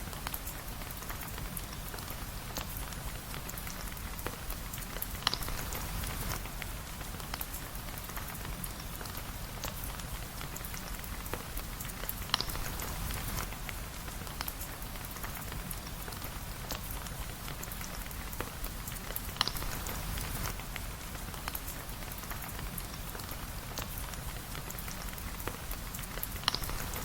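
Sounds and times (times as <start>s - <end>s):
rain hissing: 0.0s - 27.0s.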